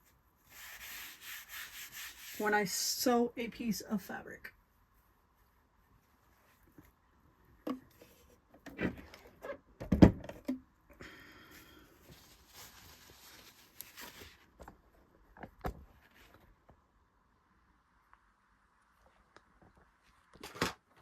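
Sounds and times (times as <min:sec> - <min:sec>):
rubbing rustling scrape: 0:00.0 - 0:02.5, 0:12.0 - 0:14.6.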